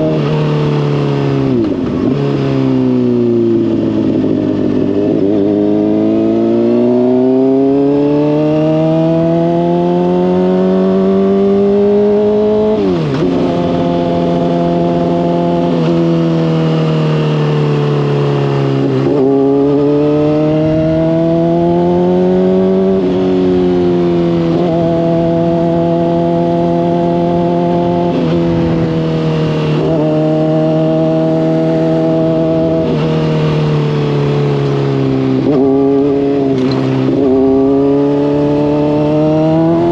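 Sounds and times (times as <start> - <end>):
motorcycle engine revving: 0.0 - 39.9
wind on microphone: 20.4 - 21.4, 26.6 - 30.1.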